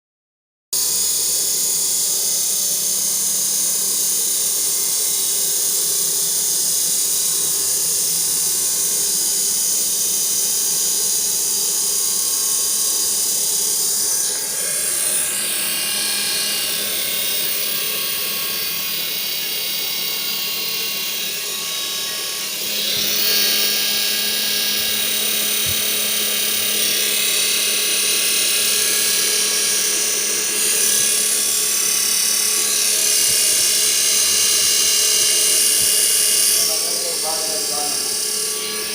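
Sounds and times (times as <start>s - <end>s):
treadmill motor whine: 0.8s - 38.9s.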